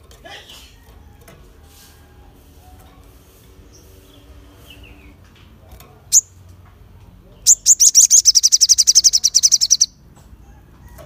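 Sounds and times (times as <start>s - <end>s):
small bird chirping: 6.1s - 6.4s, 7.3s - 10.0s.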